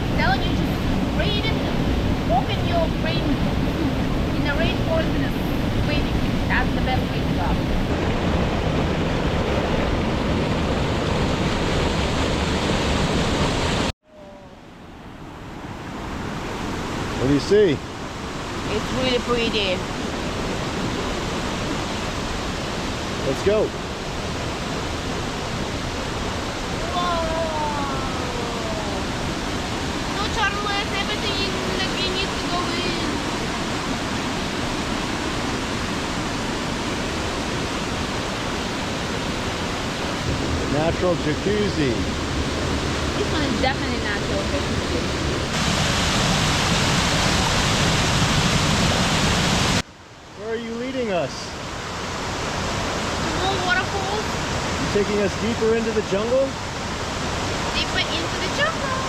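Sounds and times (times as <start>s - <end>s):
waterfall rushing: 24.3s - 49.8s, 51.7s - 59.0s.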